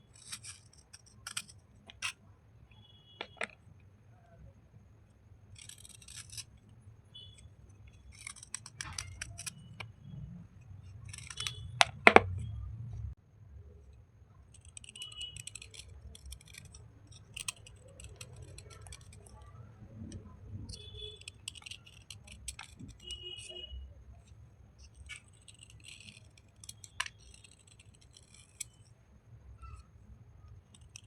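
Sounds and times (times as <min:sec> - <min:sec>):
crunching wet slate pencils: 0:05.5 - 0:10.2, 0:10.8 - 0:12.3, 0:14.4 - 0:29.0, 0:30.5 - 0:31.0.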